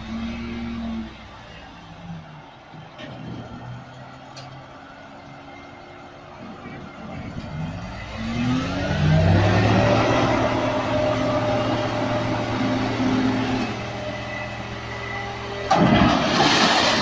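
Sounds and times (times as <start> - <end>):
tractor engine revving: 7.1 - 17.0
loud burst of noise: 15.7 - 17.0.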